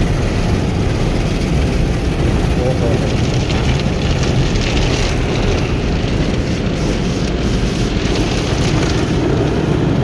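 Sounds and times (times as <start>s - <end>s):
car wash rushing noise: 0.0s - 10.0s.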